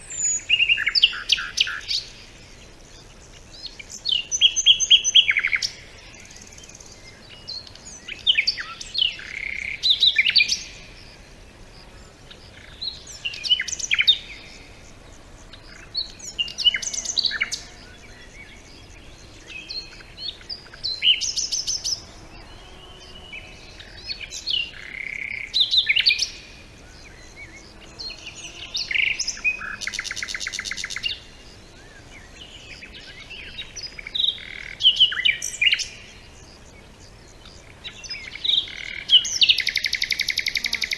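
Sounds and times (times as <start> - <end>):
songbirds warbling: 0.0 - 40.9.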